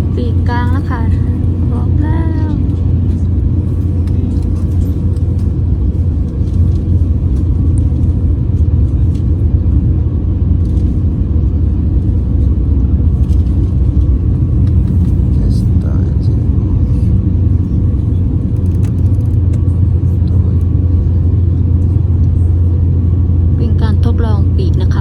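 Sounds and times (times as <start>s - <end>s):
airliner engines and cabin air rumble: 0.0s - 25.0s
faint steady hum: 0.0s - 25.0s.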